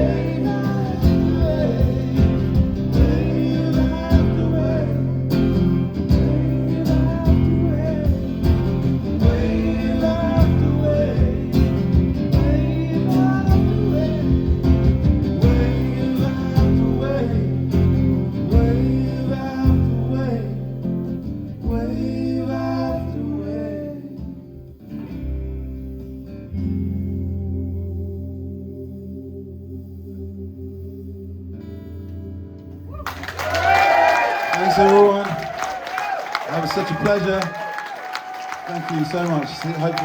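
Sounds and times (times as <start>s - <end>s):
live band music: 0.0s - 20.2s
person singing: 0.0s - 20.8s
acoustic guitar: 0.0s - 40.0s.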